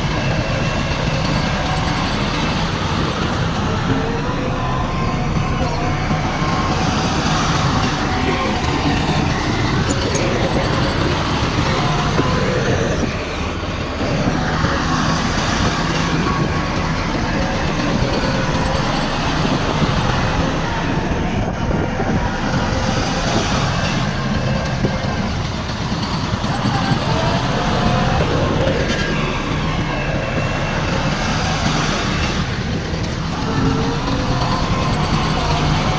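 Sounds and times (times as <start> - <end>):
heavy diesel machinery engine drone: 0.0 - 35.9.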